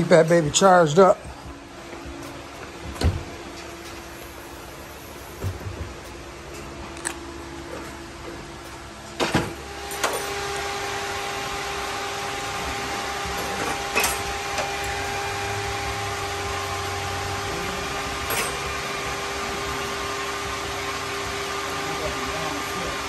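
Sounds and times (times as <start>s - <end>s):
electric whir with hum: 0.0s - 23.0s
tools clinking: 13.4s - 15.2s, 18.2s - 18.8s.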